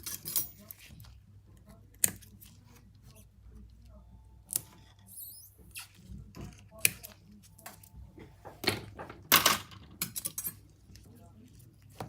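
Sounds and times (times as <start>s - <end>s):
high squeak: 5.0s - 5.9s.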